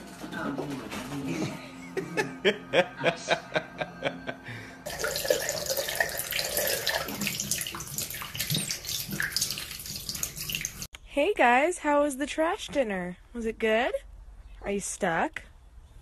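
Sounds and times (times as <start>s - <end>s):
tap water running and splashing: 4.9s - 10.9s.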